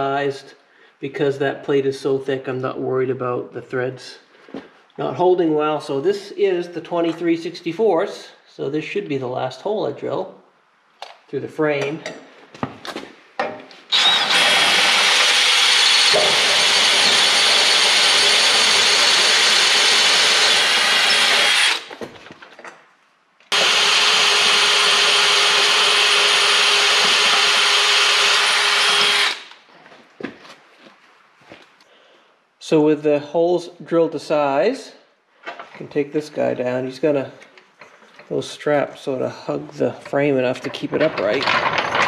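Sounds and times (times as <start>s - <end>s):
power drill boring through metal: 13.9s - 21.9s, 23.5s - 29.6s, 41.0s - 42.0s.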